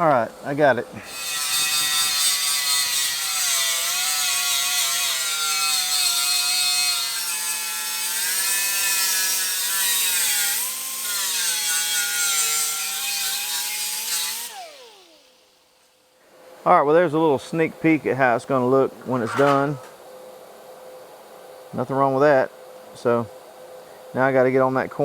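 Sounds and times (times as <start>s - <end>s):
electric grinder on sheet metal: 1.0s - 15.9s.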